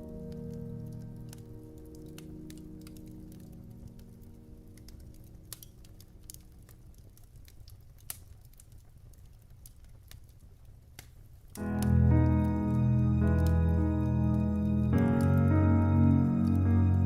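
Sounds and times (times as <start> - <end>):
piano chord: 0.0 - 5.3, 11.6 - 17.0
wood fire crackling: 0.0 - 17.0.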